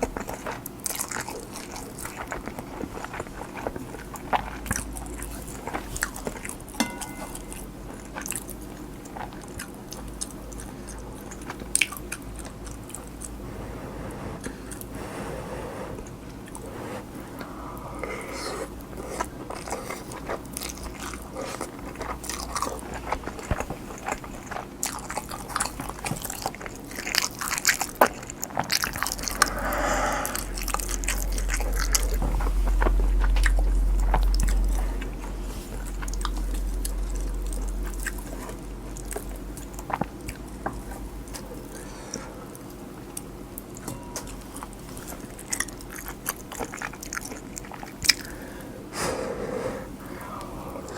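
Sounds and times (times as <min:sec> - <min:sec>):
close-miked chewing: 0:00.0 - 0:48.7
low rumble: 0:28.7 - 0:41.3.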